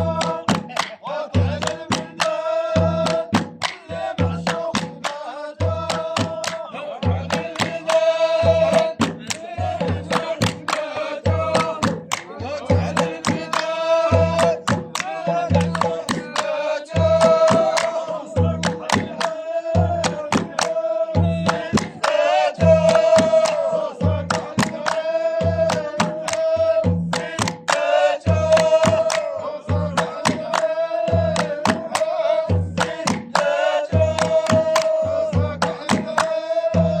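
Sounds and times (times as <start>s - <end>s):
folk singing with held notes: 0.0s - 37.0s
sharp percussive hits: 0.0s - 37.0s.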